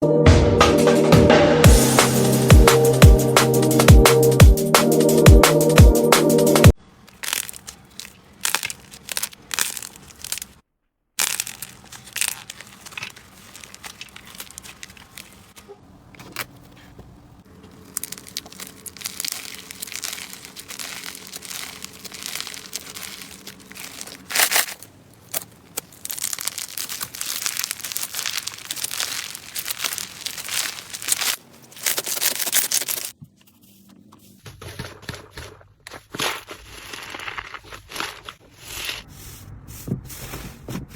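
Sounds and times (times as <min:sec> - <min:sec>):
slime squelching and crackling: 0:07.0 - 0:10.6, 0:11.2 - 0:33.2, 0:34.7 - 0:39.1.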